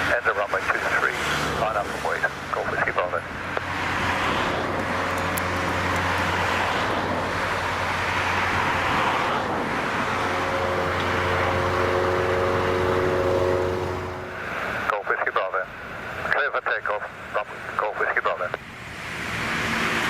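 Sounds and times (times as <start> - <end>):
jet engines rushing: 0.0 - 20.0
whining tone: 1.7 - 15.0.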